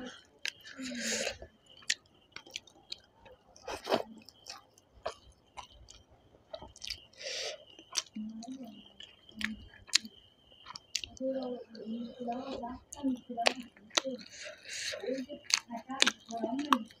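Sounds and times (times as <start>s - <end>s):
wet chewing and lip-smacking: 0.3s - 7.2s, 7.8s - 11.2s, 12.3s - 17.0s
short breaths: 7.2s - 7.6s.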